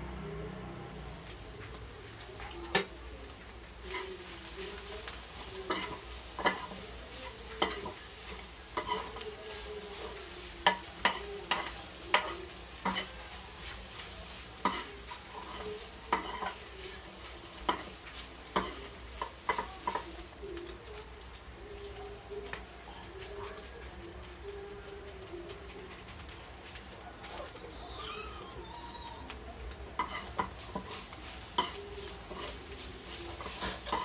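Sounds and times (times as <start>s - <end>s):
food sizzling in oil: 0.1s - 34.0s
utensil scraping a pan: 3.6s - 20.2s, 30.0s - 34.0s.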